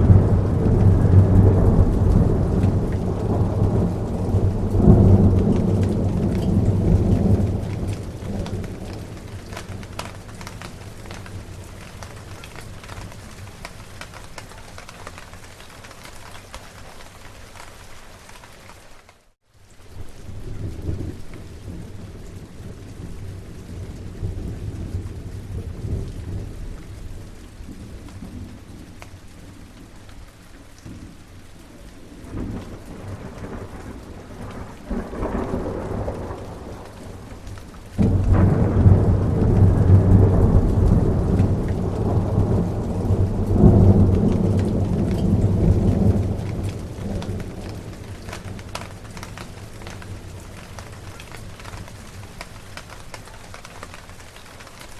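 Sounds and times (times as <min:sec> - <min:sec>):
rolling thunder: 0:00.0 - 0:14.0, 0:32.1 - 0:52.6
steady rain: 0:00.0 - 0:54.9.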